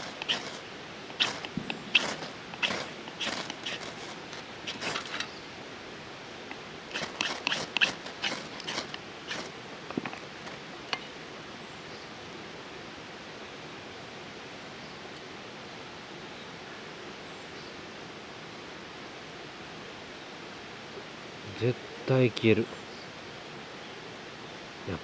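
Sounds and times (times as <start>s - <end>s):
sticks scraping and rustling: 0.0s - 5.4s, 6.9s - 11.2s
faint steady hiss: 0.0s - 25.0s.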